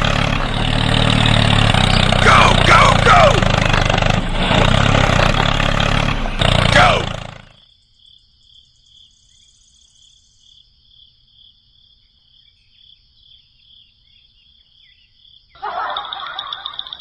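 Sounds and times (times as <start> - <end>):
loud rasping noise: 0.0 - 7.5.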